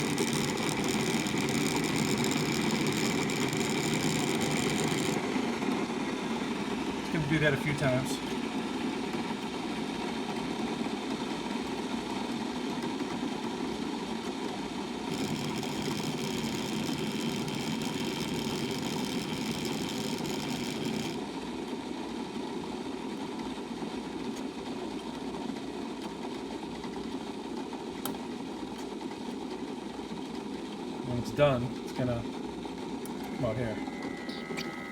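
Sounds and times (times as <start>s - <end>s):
coffee brewer humming: 0.0s - 21.8s, 30.9s - 34.9s.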